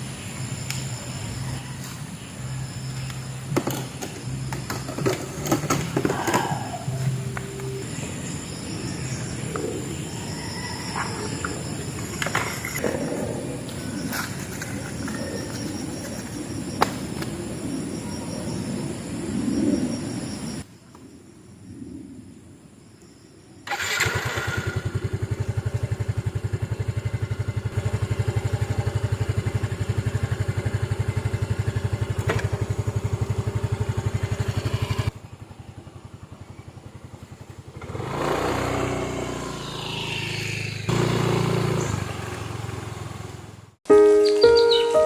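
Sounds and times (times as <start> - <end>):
engine with rising whine: 0.0 - 20.7, 23.1 - 43.8
small engine running: 23.7 - 43.7.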